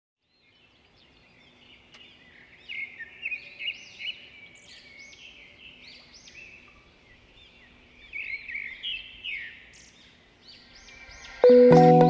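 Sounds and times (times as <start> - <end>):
many birds chirping: 0.2 - 12.0.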